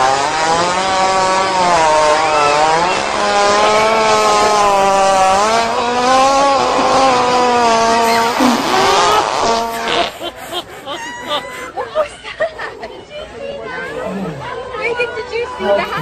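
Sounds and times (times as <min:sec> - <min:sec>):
hippopotamus farting: 0:00.0 - 0:10.4.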